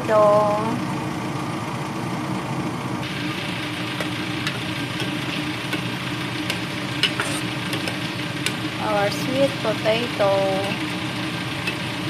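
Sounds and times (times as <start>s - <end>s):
low hum: 0.0s - 12.0s
food frying in oil: 3.0s - 12.0s.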